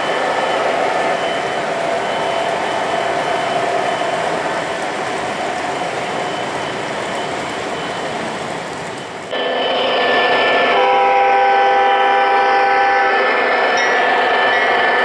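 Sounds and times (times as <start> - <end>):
model train running on track: 0.0 - 15.0
model train horn chord: 9.3 - 15.0.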